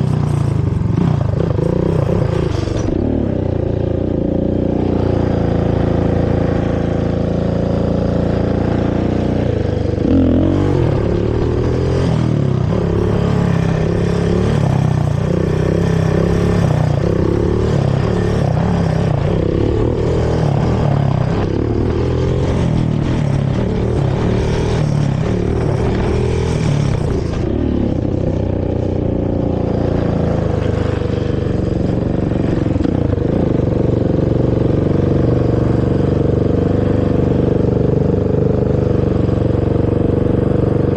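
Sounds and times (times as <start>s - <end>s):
quad engine revving: 0.0s - 40.9s.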